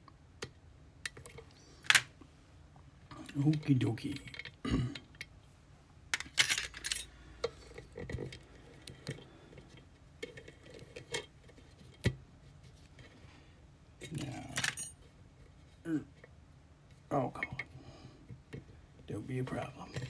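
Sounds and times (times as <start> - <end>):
metal lock and tools clicking: 1.8 - 2.1.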